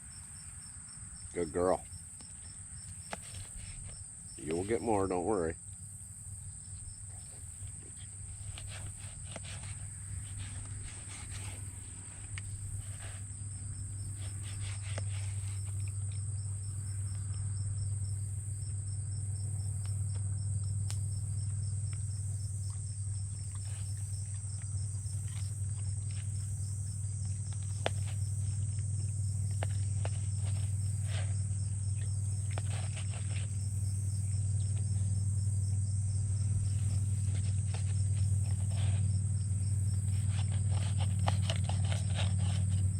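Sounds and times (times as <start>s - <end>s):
crickets chirping: 0.0s - 42.9s
low hum: 6.2s - 42.9s.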